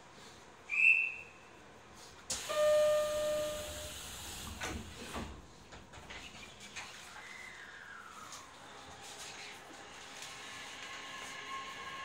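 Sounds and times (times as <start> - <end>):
loud hiss: 2.3 - 4.9
short high beep: 2.4 - 3.9.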